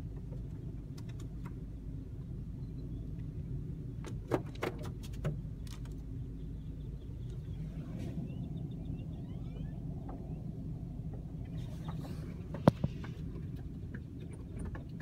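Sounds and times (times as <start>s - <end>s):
low rumble inside a car: 0.0s - 15.0s.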